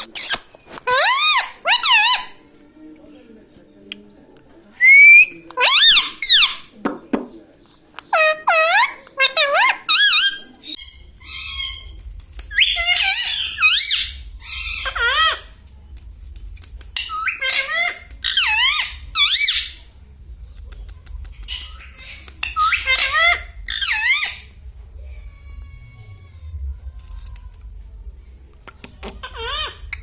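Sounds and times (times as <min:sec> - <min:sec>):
parakeet warbling calls: 0:08.1 - 0:15.5, 0:17.0 - 0:19.8, 0:21.5 - 0:24.5.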